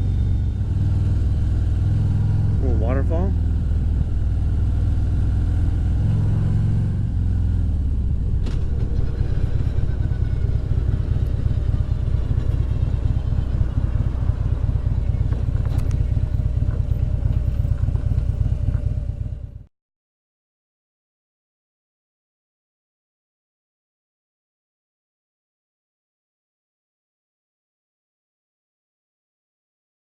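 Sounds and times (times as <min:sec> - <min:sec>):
motorcycle engine running: 0:00.0 - 0:19.7.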